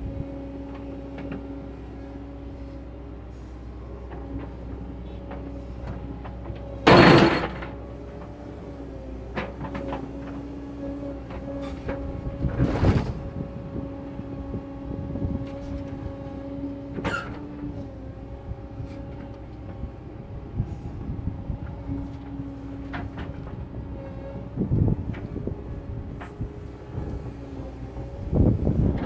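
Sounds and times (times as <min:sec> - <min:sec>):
constant whine: 0:00.0 - 0:29.0
excavator engine drone: 0:00.0 - 0:29.0.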